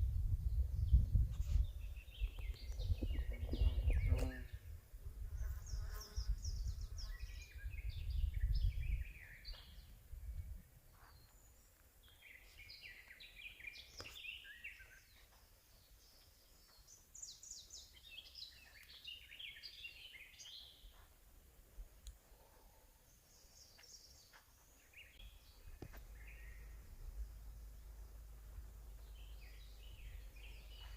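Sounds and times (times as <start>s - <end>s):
songbirds singing: 0.0s - 21.0s, 22.0s - 30.9s
low rumble: 25.4s - 30.9s.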